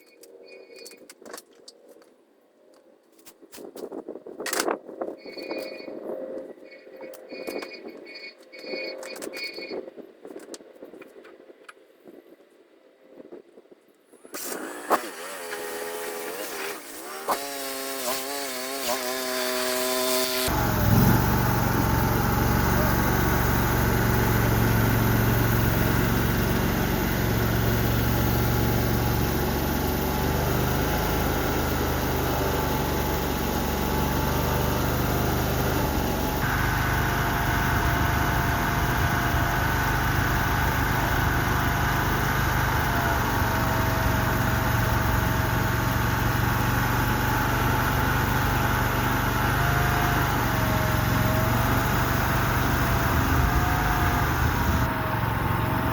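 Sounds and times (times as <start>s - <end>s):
small engine running: 14.3s - 55.9s
steady whine: 18.9s - 55.9s.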